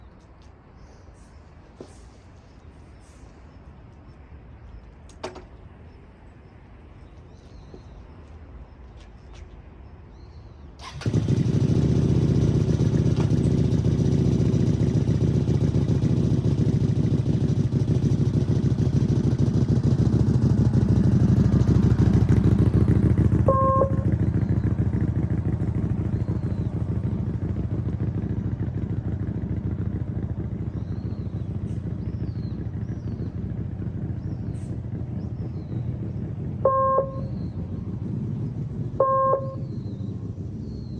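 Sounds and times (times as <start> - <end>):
motorcycle engine running: 10.8 - 40.9
short beep: 23.4 - 24.2, 36.7 - 37.4, 39.0 - 39.7.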